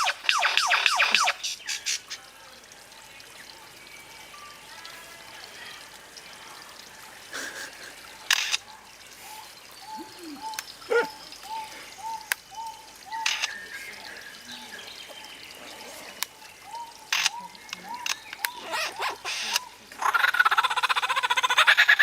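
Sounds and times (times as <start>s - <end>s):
bird calling arched notes: 0.0s - 2.2s, 8.2s - 15.5s, 16.4s - 22.0s
sharp clicks: 8.3s - 8.6s, 17.1s - 18.6s.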